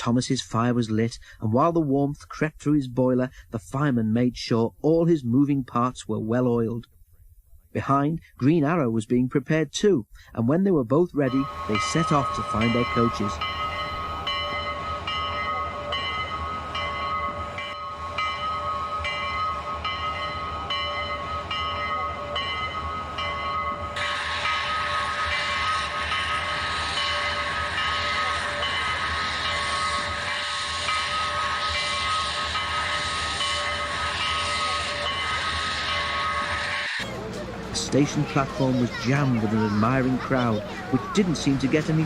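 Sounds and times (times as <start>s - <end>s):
steam locomotive rumbling: 10.2s - 42.0s
steam hiss: 23.9s - 37.1s.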